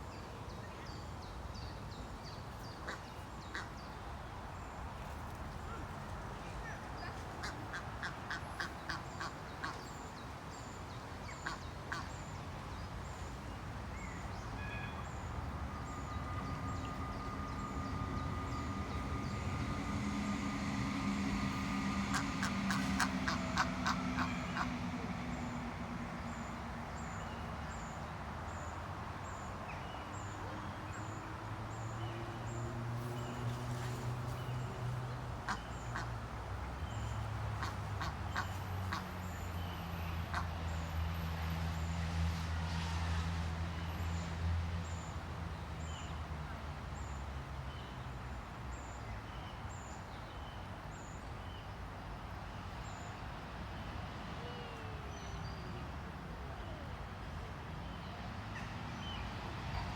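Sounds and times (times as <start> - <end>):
low steady hum: 13.2 - 28.2
ducks quacking: 21.2 - 26.0.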